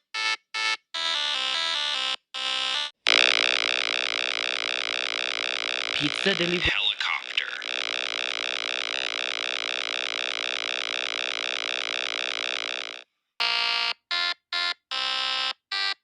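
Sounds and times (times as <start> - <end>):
fluttering synthesized electronic tone: 7.3 - 13.0.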